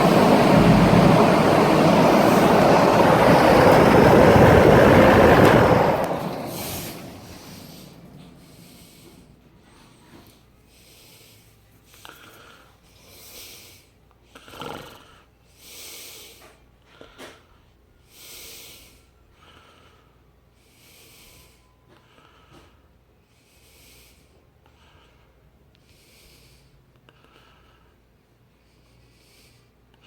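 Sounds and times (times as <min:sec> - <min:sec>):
box fan motor hum: 0:00.0 - 0:08.4.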